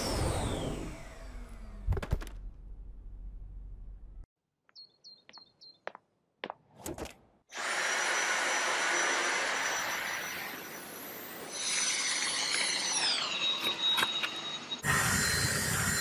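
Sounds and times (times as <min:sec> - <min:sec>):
vacuum cleaner running: 0:00.0 - 0:01.9, 0:07.6 - 0:14.2, 0:14.8 - 0:16.0.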